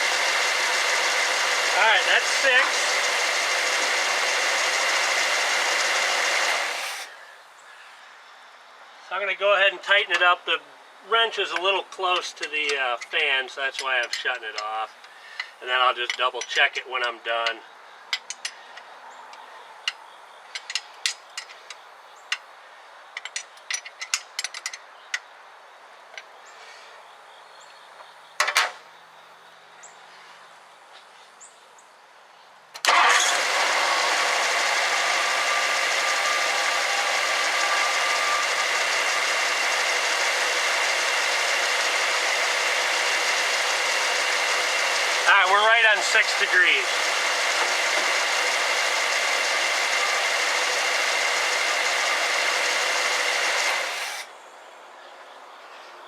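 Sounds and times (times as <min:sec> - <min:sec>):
car engine starting and idling: 0:00.0 - 0:07.1, 0:32.8 - 0:54.3.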